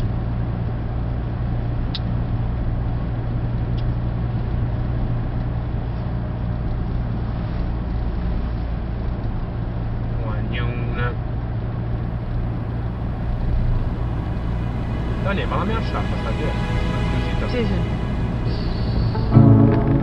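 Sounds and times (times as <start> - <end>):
car engine hum: 11.5 - 20.0.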